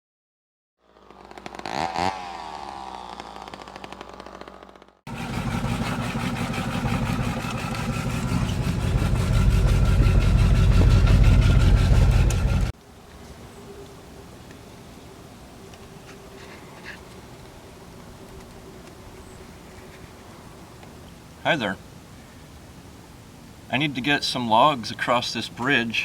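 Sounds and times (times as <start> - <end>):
engine passing by: 0.8 - 12.8
engine running steadily: 0.9 - 12.8.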